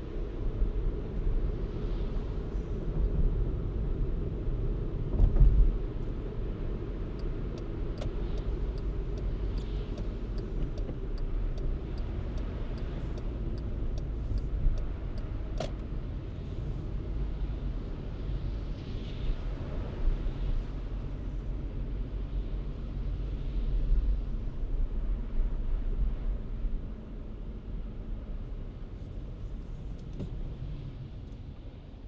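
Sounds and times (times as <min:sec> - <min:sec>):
car road and engine rumble: 0:00.0 - 0:32.0
light regular ticks: 0:07.0 - 0:15.9.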